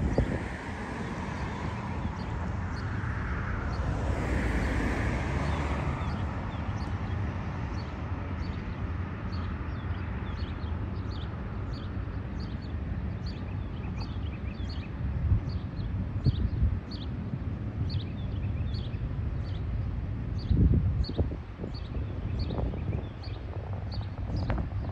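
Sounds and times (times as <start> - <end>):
small birds chirping: 5.5 - 17.2, 20.4 - 24.9.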